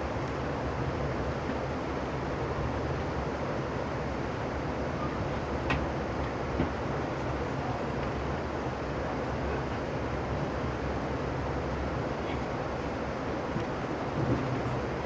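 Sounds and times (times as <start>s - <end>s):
moving train rumbling: 13.2s - 15.0s.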